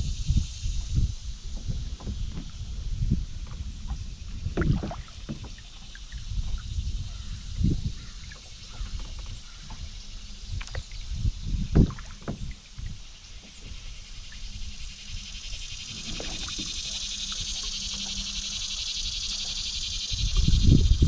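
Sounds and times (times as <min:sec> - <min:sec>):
paddle knocking on hull: 0:01.5 - 0:07.4, 0:08.0 - 0:10.9, 0:11.6 - 0:14.8, 0:15.9 - 0:18.4.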